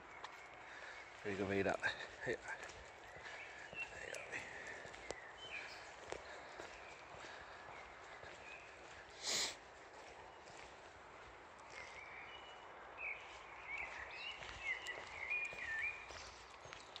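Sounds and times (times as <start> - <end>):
bird singing whistled notes: 11.8 - 16.4.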